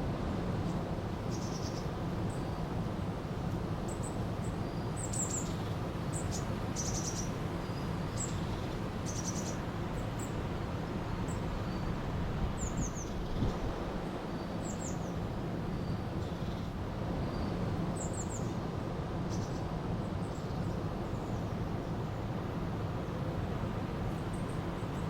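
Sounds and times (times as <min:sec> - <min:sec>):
songbirds chirping and trilling: 0:03.9 - 0:18.6.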